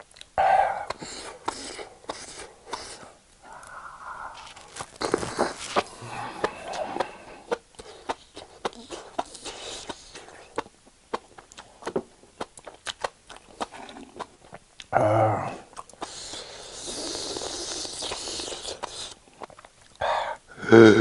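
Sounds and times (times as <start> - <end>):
wet chewing and mouth smacking: 0.0 - 14.9, 15.6 - 20.0
person humming: 3.4 - 7.6, 14.9 - 15.7, 20.5 - 21.0.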